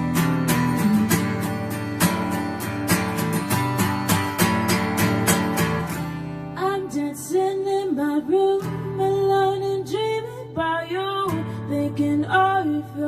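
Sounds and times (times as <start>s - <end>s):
acoustic guitar strumming: 0.0s - 13.0s
woman singing: 6.5s - 13.0s.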